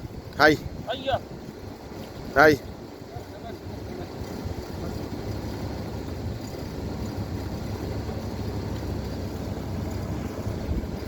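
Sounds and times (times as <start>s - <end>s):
wind noise on microphone: 0.0s - 11.0s
vehicle engine rumble: 2.7s - 11.0s.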